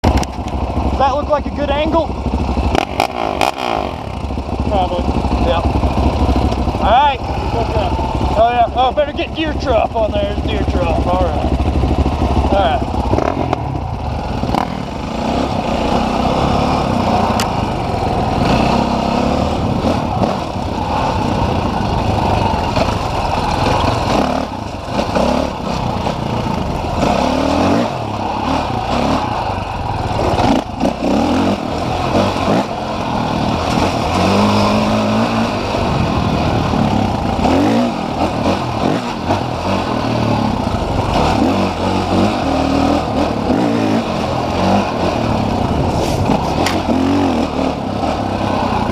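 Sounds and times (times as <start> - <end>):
dirt bike engines revving: 0.0 - 48.9.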